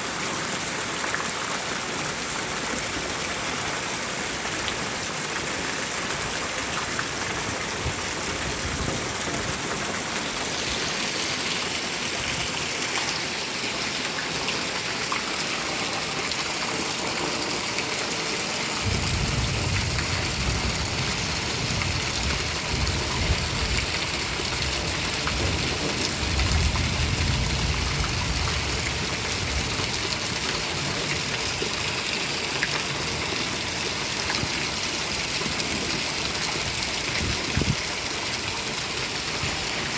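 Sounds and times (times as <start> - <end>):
steady rain: 0.0 - 39.9
low rolling thunder: 18.8 - 30.3.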